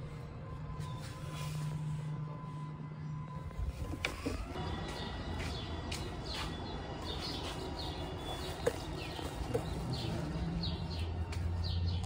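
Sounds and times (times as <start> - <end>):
small birds chirping: 4.6 - 12.0.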